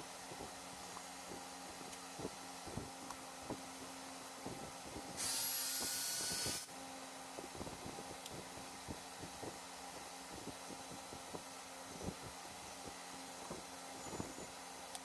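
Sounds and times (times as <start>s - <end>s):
high-pitched power tool whirring: 5.2s - 6.7s.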